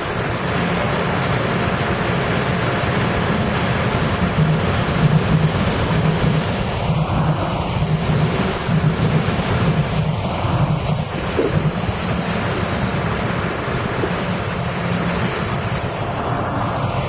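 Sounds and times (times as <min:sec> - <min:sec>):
electric train rumbling past: 0:00.0 - 0:17.0
wind on the microphone: 0:03.5 - 0:17.0.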